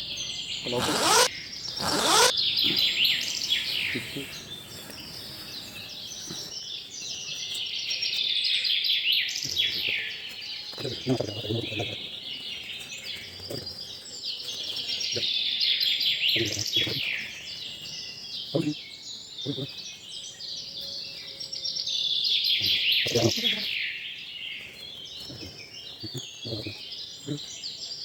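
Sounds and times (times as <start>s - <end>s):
birds chirping and calling: 0.0s - 5.2s.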